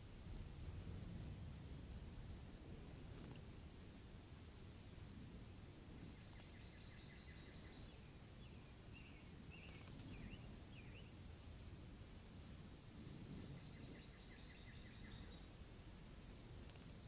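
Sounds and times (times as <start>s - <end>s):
low background noise: 0.0s - 17.0s
distant songbird calls: 6.1s - 11.2s, 13.4s - 15.6s.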